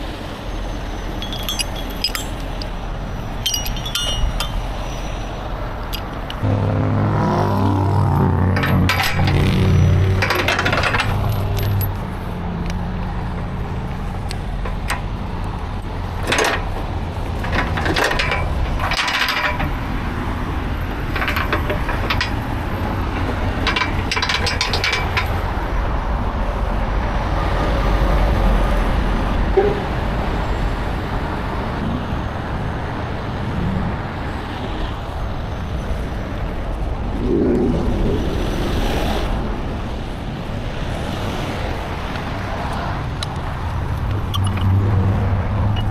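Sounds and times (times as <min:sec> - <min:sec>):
low engine rumble: 0:00.0 - 0:31.8
metallic clanks and clinks: 0:01.1 - 0:06.4, 0:08.6 - 0:12.0, 0:16.2 - 0:20.0, 0:20.9 - 0:25.5, 0:44.3 - 0:44.8.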